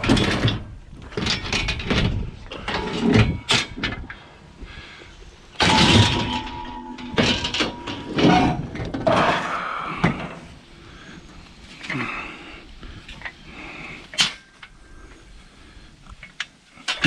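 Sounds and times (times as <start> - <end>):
junk knocking and clattering: 0.0 - 4.2, 5.6 - 9.4.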